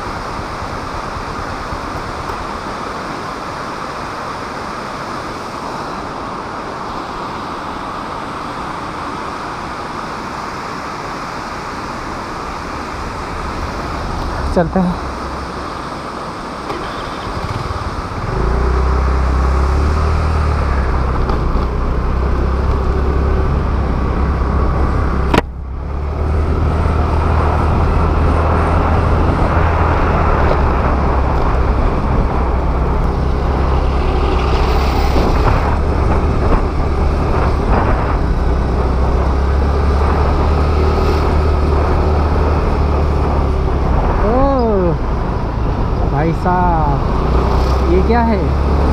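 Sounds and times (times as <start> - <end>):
wind rush: 0.0 - 48.9
scooter engine rumble: 13.2 - 46.1.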